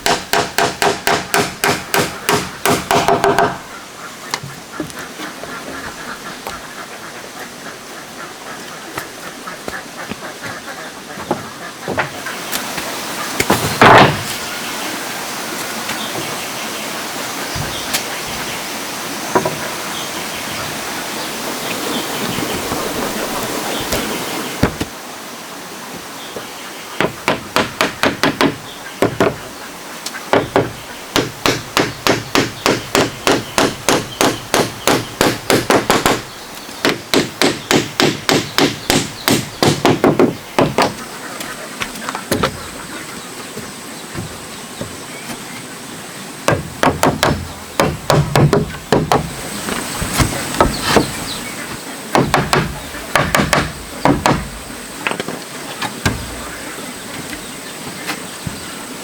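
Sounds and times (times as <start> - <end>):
hammer driving nails into wood: 0.0 - 3.6.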